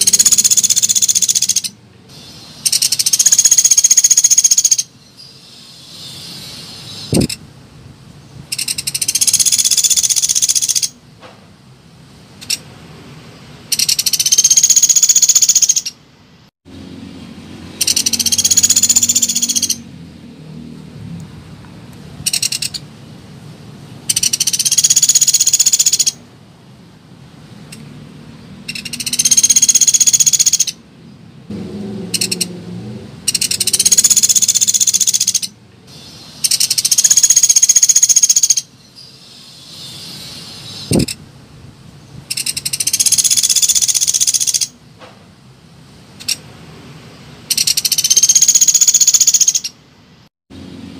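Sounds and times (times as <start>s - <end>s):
woodpecker rattling call: 0.0s - 7.4s, 8.5s - 11.0s, 13.7s - 16.0s, 17.8s - 19.9s, 22.2s - 22.9s, 24.0s - 26.2s, 28.7s - 30.8s, 32.1s - 32.5s, 33.2s - 41.2s, 42.3s - 44.8s, 47.5s - 49.8s.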